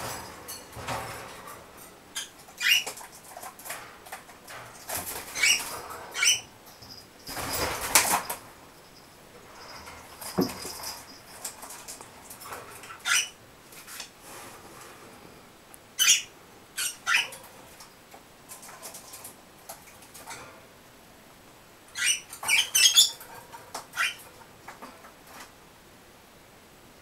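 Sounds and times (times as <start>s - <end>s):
birds chirping and squeaking: 0.0s - 13.4s, 16.0s - 17.8s, 21.9s - 24.4s.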